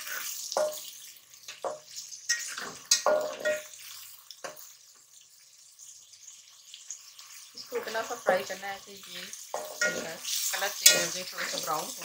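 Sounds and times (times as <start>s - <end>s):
food sizzling in hot oil: 0.0s - 12.0s
metal spatula scraping pot: 1.6s - 4.6s, 9.4s - 12.0s.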